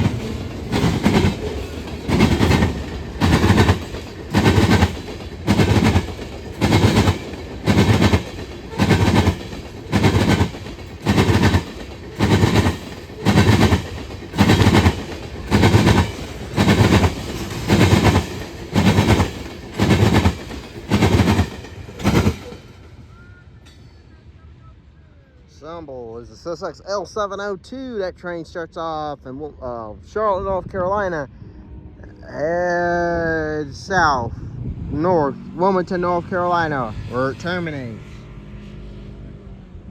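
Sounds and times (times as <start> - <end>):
freight train wheels clanking: 0.0 - 24.0.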